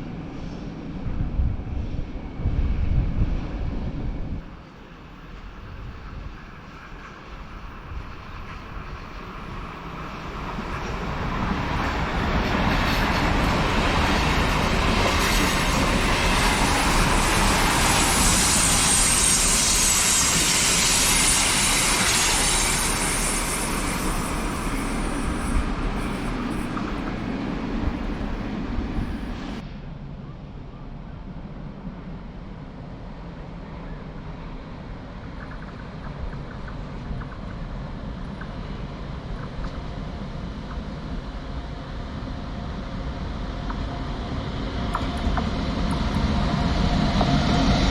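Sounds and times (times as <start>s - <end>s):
train passing at speed: 0.0s - 47.9s
hiss: 4.8s - 29.6s
high wheel squeal: 14.9s - 29.6s.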